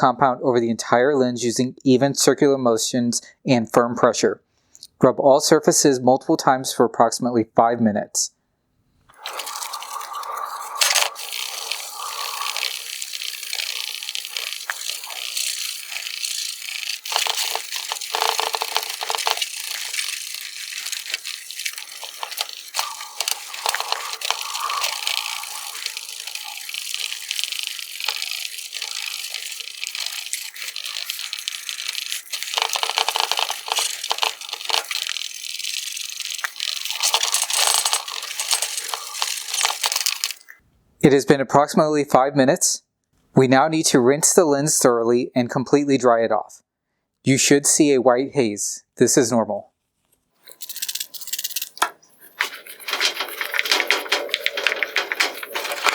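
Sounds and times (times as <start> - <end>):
towel scrubbing a wet lens: 9.1 - 40.5, 50.4 - 55.9.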